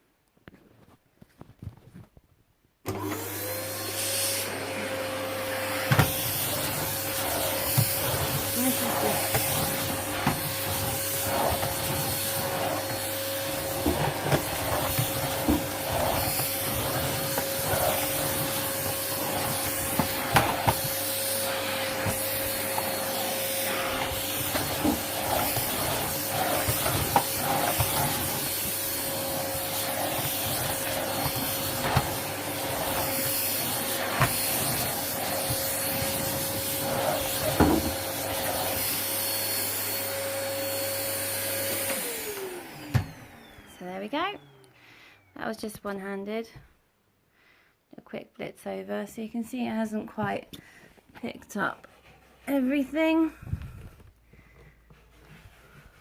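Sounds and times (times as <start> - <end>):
vacuum cleaner running on carpet: 2.9 - 45.3.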